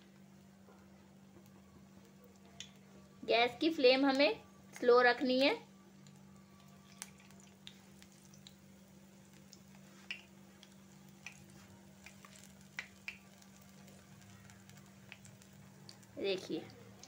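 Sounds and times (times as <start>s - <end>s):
food sizzling in oil: 6.8s - 17.0s.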